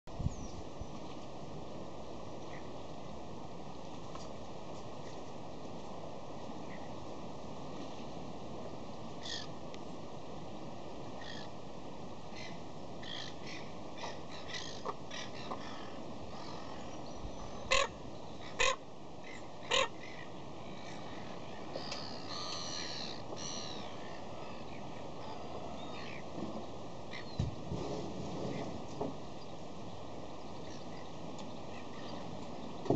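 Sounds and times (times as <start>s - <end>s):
steady background hiss: 0.1s - 32.9s
harsh caw-like bird calls: 9.2s - 9.5s, 11.2s - 11.6s, 12.3s - 17.0s, 17.6s - 26.2s.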